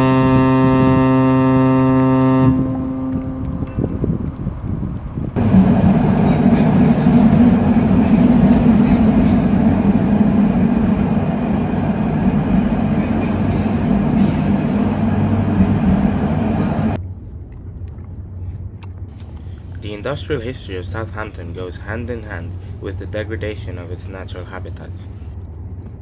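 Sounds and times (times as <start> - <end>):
loud mechanical rumble: 5.4 - 17.0.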